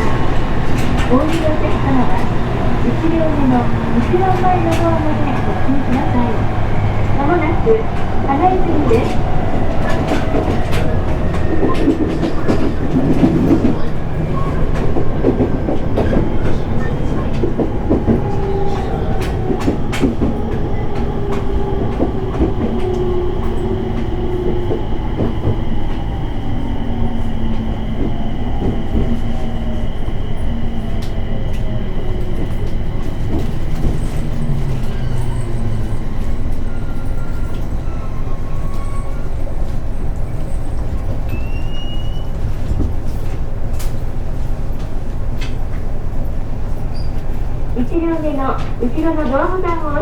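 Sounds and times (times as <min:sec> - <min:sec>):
wheels clicking over rail joints: 0:00.0 - 0:26.2
train wheel and track rumble: 0:00.0 - 0:50.0.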